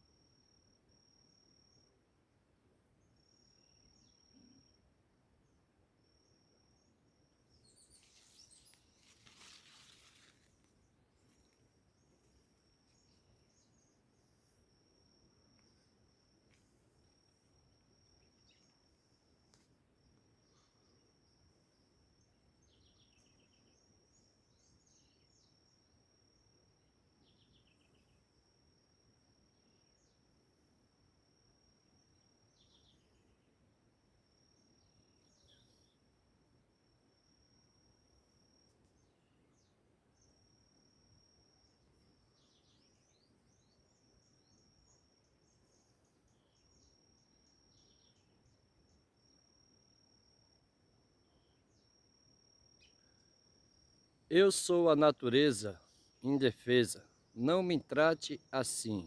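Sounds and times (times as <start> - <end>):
faint birdsong chirps: 0.0 - 59.0
bird chirps: 7.5 - 10.3.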